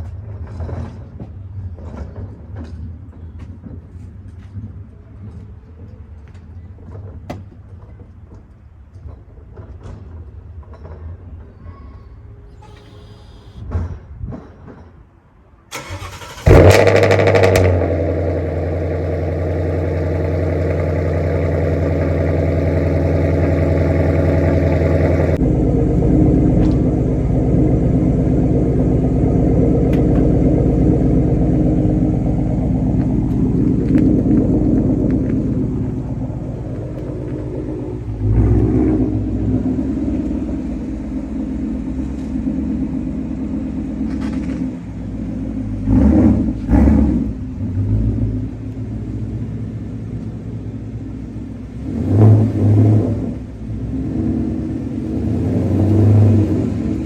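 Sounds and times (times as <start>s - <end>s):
car engine idling: 15.7s - 57.0s
low hum: 16.2s - 57.0s.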